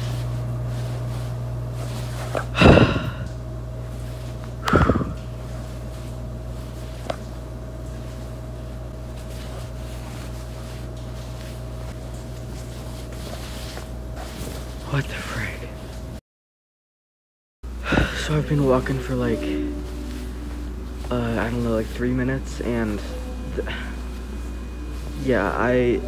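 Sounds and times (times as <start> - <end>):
low electrical hum: 0.0 - 16.2, 17.7 - 26.0
faint high tone: 18.2 - 26.0.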